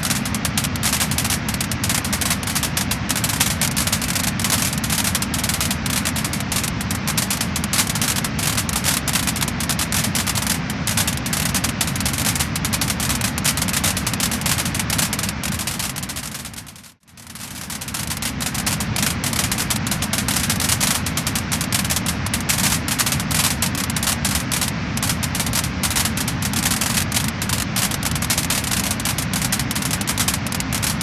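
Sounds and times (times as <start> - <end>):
wood fire crackling and popping: 0.0 - 31.0.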